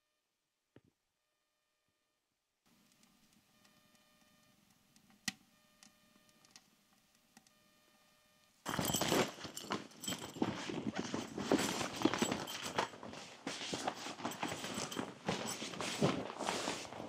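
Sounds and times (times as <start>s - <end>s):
footsteps crunching in snow: 8.7s - 17.0s.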